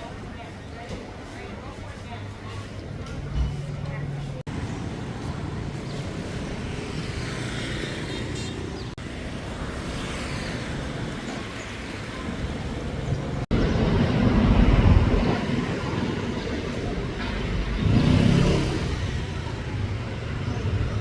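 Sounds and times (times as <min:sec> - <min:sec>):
road traffic: 0:00.0 - 0:21.0
vehicle passing close: 0:12.7 - 0:21.0.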